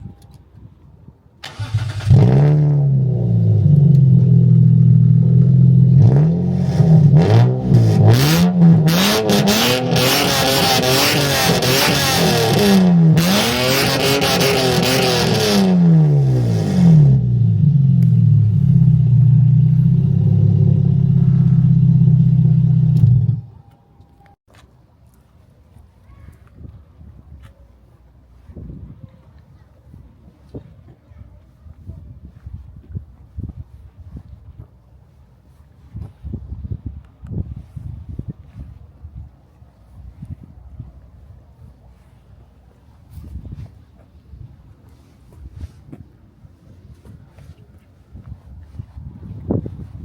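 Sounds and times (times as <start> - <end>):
car engine idling and revving: 1.6 - 24.4.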